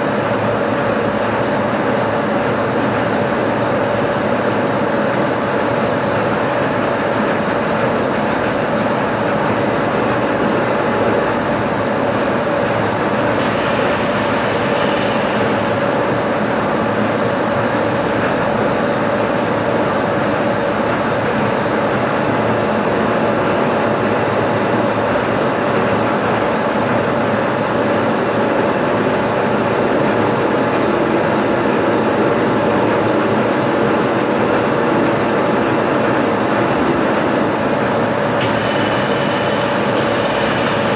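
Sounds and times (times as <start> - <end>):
machine tool droning: 9.0 - 16.0, 23.1 - 33.5, 34.2 - 40.9.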